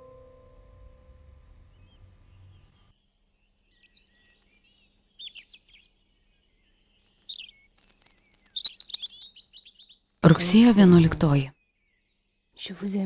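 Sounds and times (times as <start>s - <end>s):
small birds chirping: 1.7s - 13.0s.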